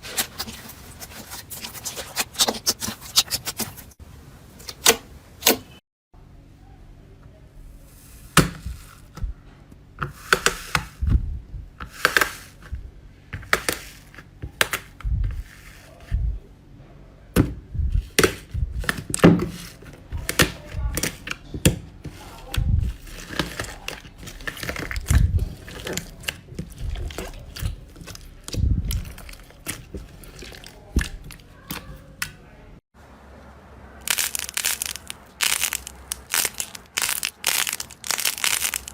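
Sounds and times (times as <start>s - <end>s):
soft low thumps: 8.6s - 9.5s, 11.0s - 11.8s, 15.0s - 15.5s, 16.1s - 16.5s, 17.4s - 19.4s, 22.5s - 23.0s, 26.6s - 29.3s
slime clicking and popping: 34.1s - 38.9s.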